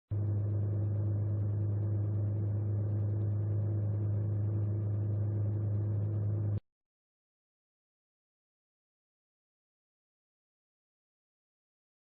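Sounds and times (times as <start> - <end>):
engine drone with low hum: 0.1 - 6.6.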